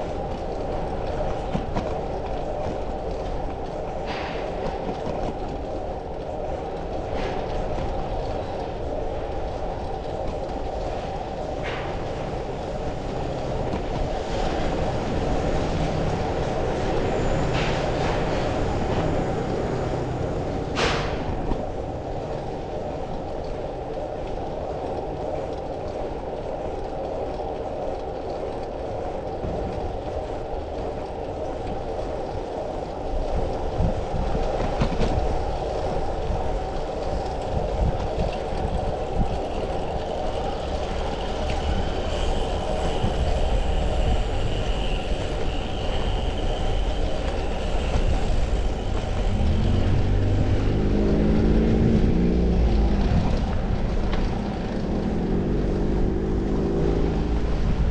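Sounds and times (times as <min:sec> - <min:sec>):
road and traffic rumble: 0:00.0 - 0:57.9
wind on microphone: 0:00.0 - 0:57.9
faint high squeal: 0:40.6 - 0:50.4.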